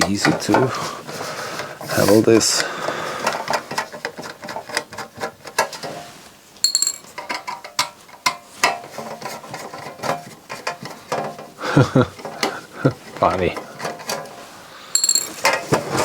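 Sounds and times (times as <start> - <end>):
high metallic ring: 6.6 - 7.1, 15.0 - 15.4.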